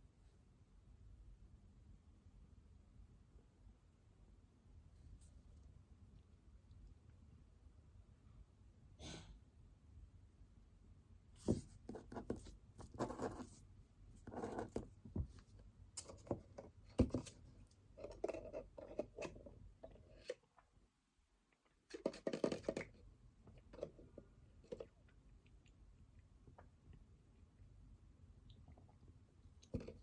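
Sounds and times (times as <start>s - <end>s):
faint room noise: 0.0s - 30.0s
pen writing on paper: 11.9s - 13.4s.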